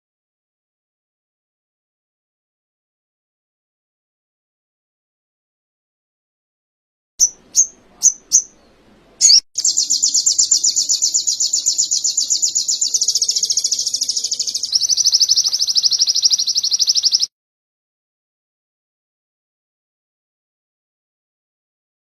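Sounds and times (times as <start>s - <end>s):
songbird singing with trills: 7.2s - 17.3s.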